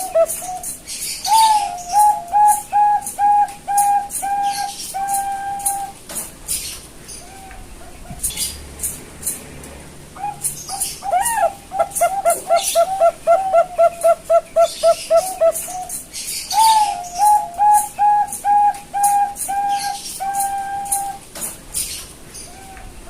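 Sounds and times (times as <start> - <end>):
dove cooing: 0.0 - 6.0, 10.2 - 21.3, 22.4 - 23.0.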